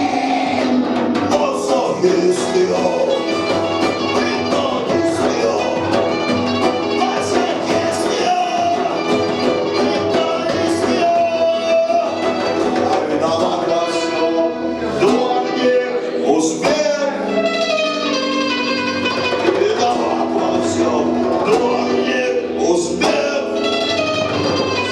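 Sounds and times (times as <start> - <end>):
drum hits: 0.0 - 14.0
punk rock band playing: 0.0 - 24.9.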